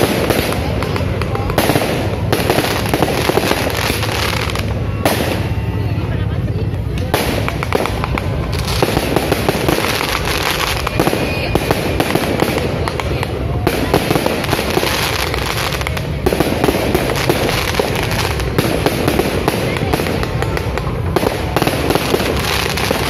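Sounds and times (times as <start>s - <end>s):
crackle of sharp pops: 6.9s - 11.0s.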